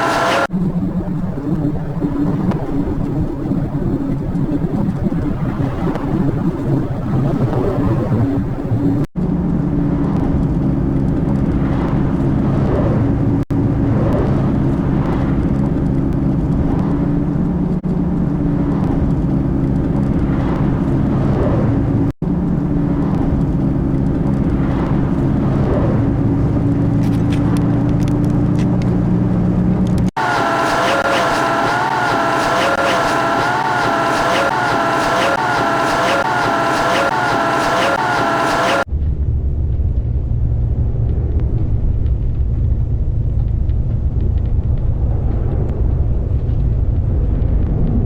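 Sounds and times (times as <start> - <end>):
vehicle engine drone and road noise: 0.0 - 0.8, 8.6 - 48.0.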